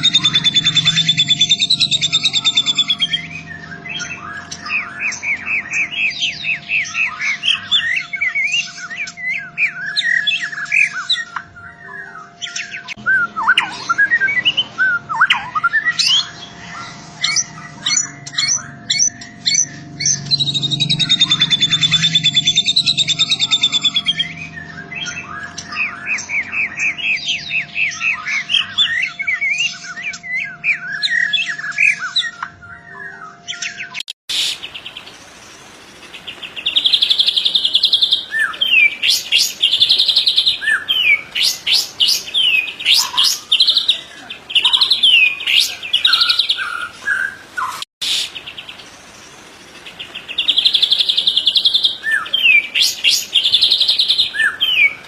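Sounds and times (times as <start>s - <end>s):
bird whistled song phrases: 0.0s - 35.0s, 36.5s - 48.6s, 50.1s - 55.0s
sharp rising bird notes: 0.0s - 55.0s.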